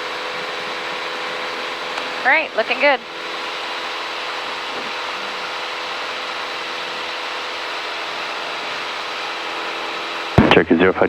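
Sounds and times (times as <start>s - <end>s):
propeller plane engine drone: 0.0s - 11.0s.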